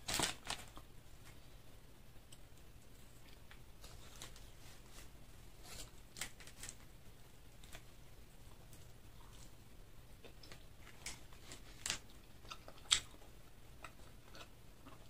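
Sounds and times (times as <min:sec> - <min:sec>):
crispy chicken being chewed: 0:10.2 - 0:15.0.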